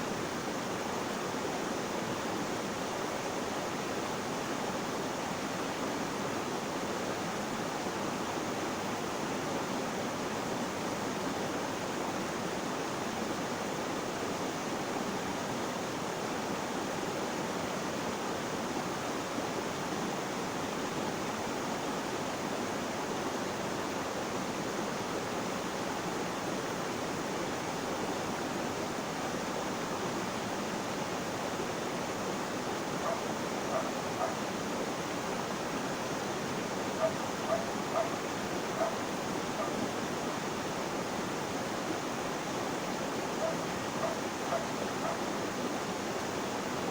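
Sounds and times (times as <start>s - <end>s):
water rushing: 27.1s - 46.9s.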